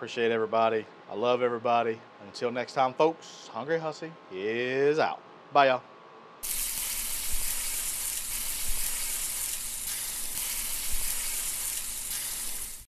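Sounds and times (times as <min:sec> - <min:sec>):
food frying sizzle: 0:06.4 - 0:12.9.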